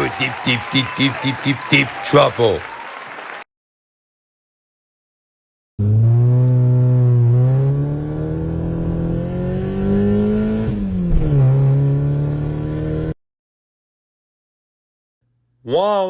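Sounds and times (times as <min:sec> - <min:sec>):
car engine accelerating: 0:05.8 - 0:13.2.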